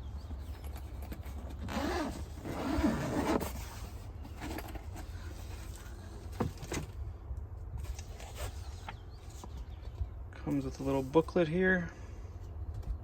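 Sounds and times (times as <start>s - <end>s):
cardboard box scraping and creaking: 1.1s - 7.0s, 7.8s - 9.5s.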